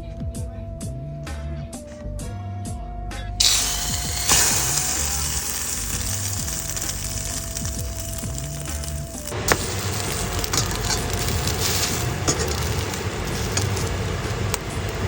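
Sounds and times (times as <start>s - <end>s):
background music: 0.0s - 15.0s
french toast sizzling in a pan: 3.4s - 15.0s.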